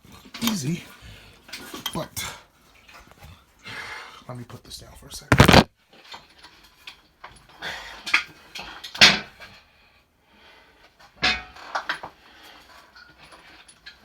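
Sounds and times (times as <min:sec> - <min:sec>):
rustling: 0:05.3 - 0:05.7.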